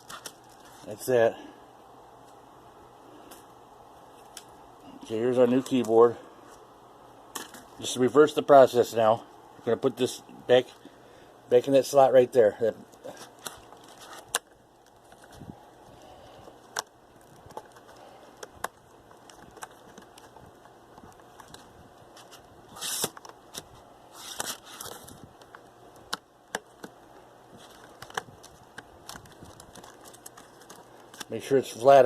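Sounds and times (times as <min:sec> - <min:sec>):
scraping rustles: 0:13.0 - 0:14.3.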